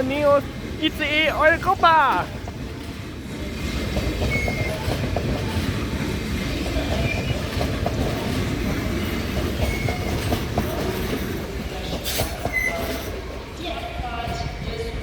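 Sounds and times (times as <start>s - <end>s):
train rumble with wheel clatter: 0.0s - 15.0s
high wheel squeals: 4.2s - 4.9s, 12.5s - 13.1s.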